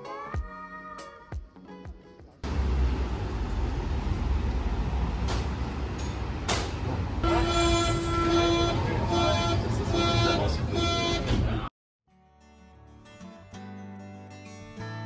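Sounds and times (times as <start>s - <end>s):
train rumbling: 2.4s - 11.7s.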